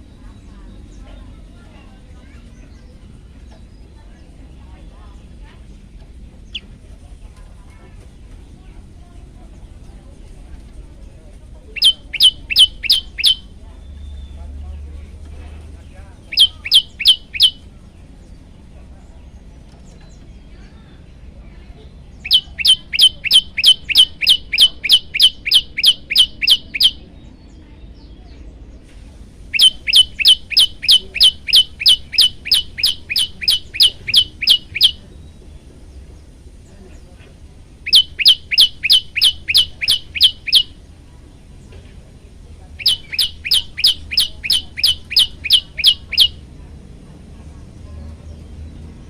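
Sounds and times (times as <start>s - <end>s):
bird chirping high downward notes: 11.8s - 13.5s, 16.3s - 17.6s, 22.2s - 27.0s, 29.5s - 35.0s, 37.8s - 40.8s, 42.8s - 46.4s.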